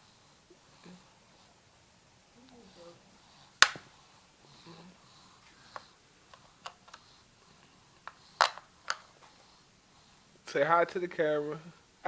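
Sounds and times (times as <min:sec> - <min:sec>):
plastic remote clicks and knocks: 0:03.6 - 0:03.8, 0:08.4 - 0:09.0.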